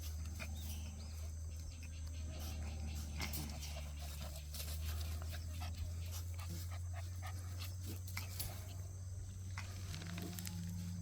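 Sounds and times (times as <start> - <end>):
dogs panting: 0.0 - 9.8
clicks and scuffs of movement: 9.4 - 11.0.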